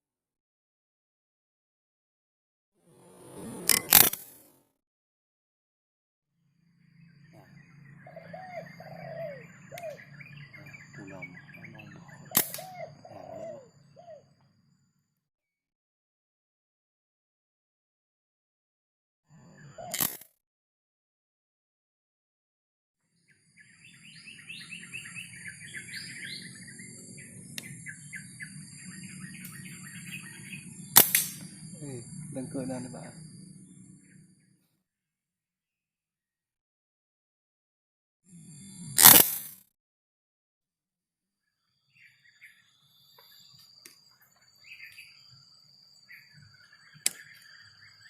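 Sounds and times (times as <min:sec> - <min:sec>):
sharp crack: 0:03.7 - 0:04.6, 0:12.3 - 0:12.7, 0:30.9 - 0:31.6, 0:39.0 - 0:39.6
bird chirping: 0:06.6 - 0:14.9, 0:23.1 - 0:34.6, 0:41.4 - 0:48.0
high-pitched insect drone: 0:23.6 - 0:34.4, 0:38.3 - 0:39.3.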